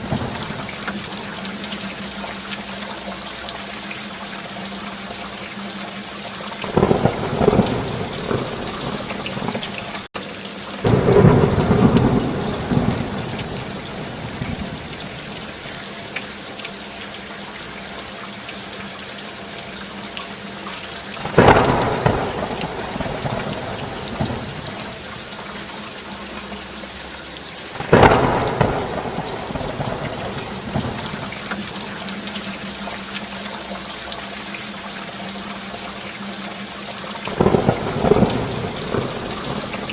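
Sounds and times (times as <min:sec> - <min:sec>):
thunder rolling: 0:00.0 - 0:01.0, 0:06.6 - 0:10.1, 0:10.9 - 0:15.6, 0:21.2 - 0:25.2, 0:27.8 - 0:32.0, 0:37.3 - 0:39.9
steady rain: 0:00.0 - 0:39.9.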